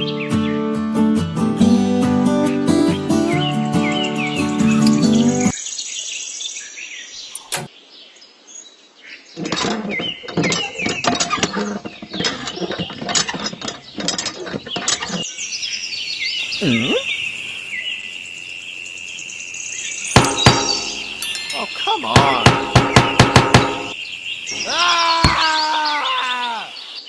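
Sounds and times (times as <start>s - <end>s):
birds tweeting: 0.0s - 0.8s, 2.3s - 27.0s
quick knocks and clatter: 9.4s - 15.3s, 20.2s - 21.2s.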